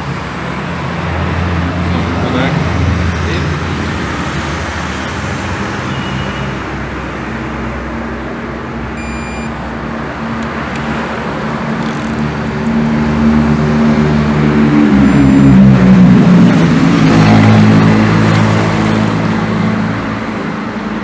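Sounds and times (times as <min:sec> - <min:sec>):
short high beep: 0:09.0 - 0:09.8, 0:15.0 - 0:15.9
engine running steadily: 0:09.0 - 0:21.0.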